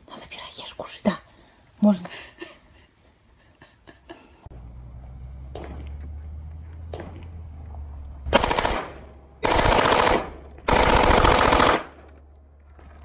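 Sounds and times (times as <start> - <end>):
automatic gunfire bursts: 8.3 - 12.0.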